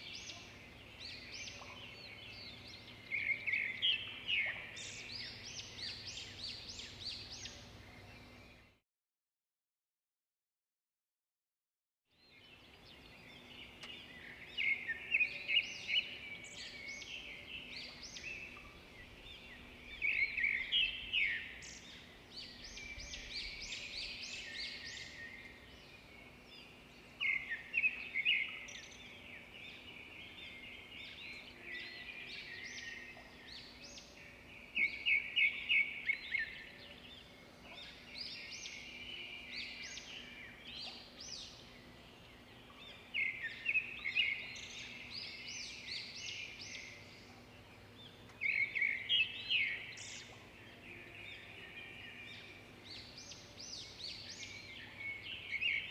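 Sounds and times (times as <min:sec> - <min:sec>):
small birds chirping and trilling: 0:00.0 - 0:08.8, 0:12.1 - 0:55.9
faint steady hum: 0:12.5 - 0:55.9.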